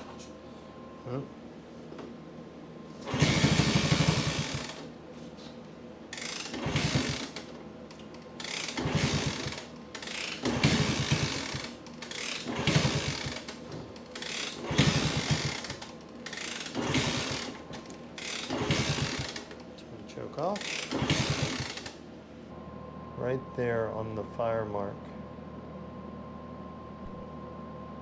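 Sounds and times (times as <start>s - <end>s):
motorcycle engine being kickstarted: 3.1s - 4.7s, 6.5s - 7.4s, 8.6s - 15.8s, 16.4s - 17.6s, 18.4s - 19.6s, 20.8s - 21.8s.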